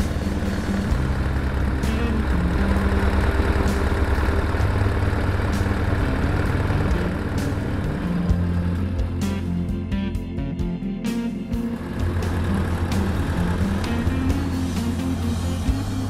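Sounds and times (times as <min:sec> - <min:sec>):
motorcycle engine idling: 0:00.0 - 0:10.0, 0:11.5 - 0:16.0.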